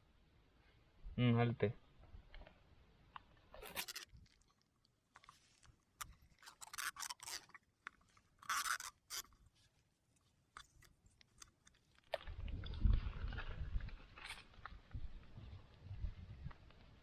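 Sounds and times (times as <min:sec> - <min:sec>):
tape ripping off roll: 0:03.6 - 0:04.5, 0:06.0 - 0:07.6, 0:08.4 - 0:09.3.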